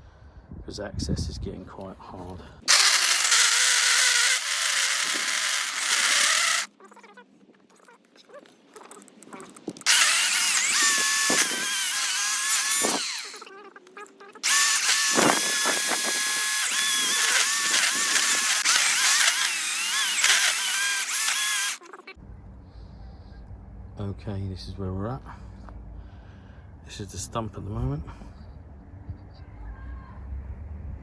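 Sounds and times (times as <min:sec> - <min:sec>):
electric chainsaw cutting wood: 0:02.7 - 0:06.7, 0:09.8 - 0:13.5, 0:14.4 - 0:21.8.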